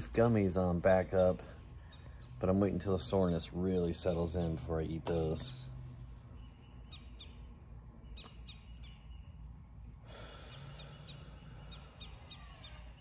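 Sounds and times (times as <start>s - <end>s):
low steady rumble: 0.0s - 13.0s
small birds chirping: 0.0s - 13.0s.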